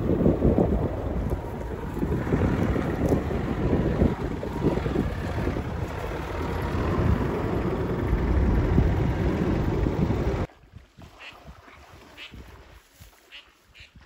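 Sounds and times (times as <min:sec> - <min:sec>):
vehicle rumble: 0:00.0 - 0:10.5
wind buffeting microphone: 0:00.0 - 0:12.8.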